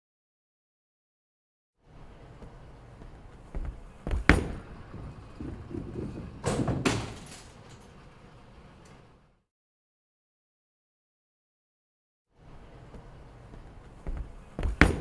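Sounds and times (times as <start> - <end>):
knocks and thuds: 3.5 - 7.6, 14.1 - 15.0
low rumble: 4.6 - 6.8.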